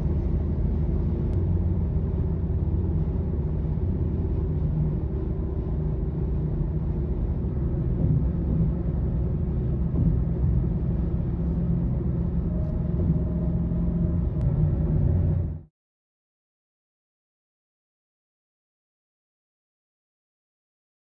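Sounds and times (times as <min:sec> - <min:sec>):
road traffic rumble: 0:00.0 - 0:15.6
faint low hum: 0:00.0 - 0:15.7.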